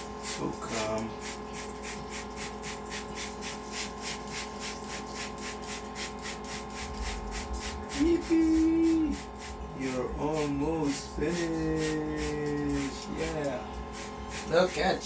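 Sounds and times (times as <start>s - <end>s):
pulsing water spray: 0.0s - 15.0s.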